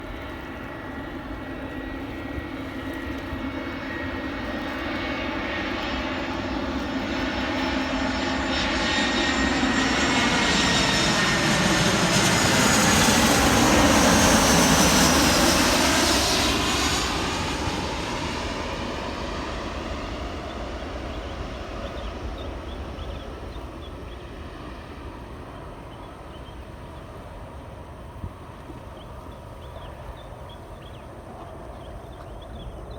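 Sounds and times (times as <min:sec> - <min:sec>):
jet airliner passing: 0:00.0 - 0:32.9.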